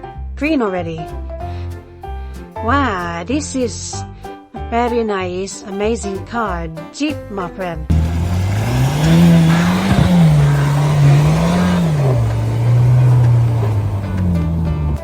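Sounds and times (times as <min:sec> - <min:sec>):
car engine revving: 0:07.9 - 0:15.0.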